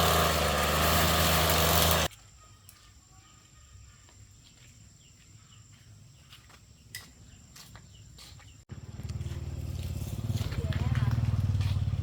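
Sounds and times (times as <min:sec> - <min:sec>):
engine running with low pulse: 0:00.0 - 0:02.1.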